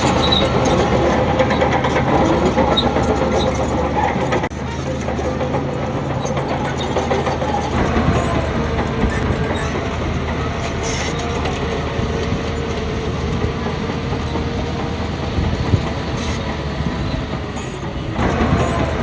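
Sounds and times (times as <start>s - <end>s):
bulldozer engine drone: 0.0s - 19.0s
steel tracks clanking: 0.0s - 19.0s.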